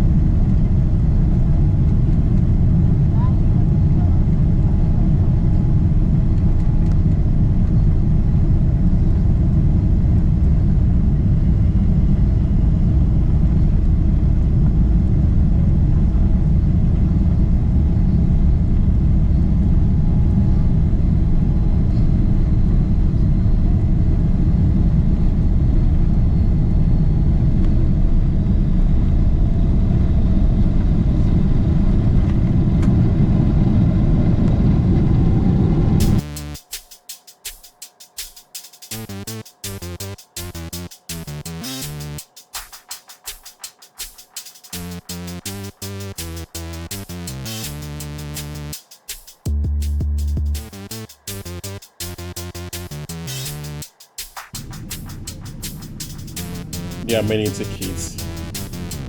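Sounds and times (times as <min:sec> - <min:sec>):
airliner cabin engine rumble: 0:00.0 - 0:36.0.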